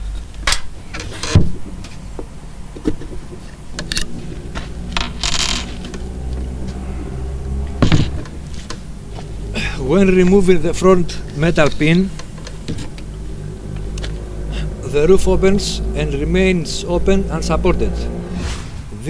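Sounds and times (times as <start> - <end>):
short scrape: 18.2 - 19.0.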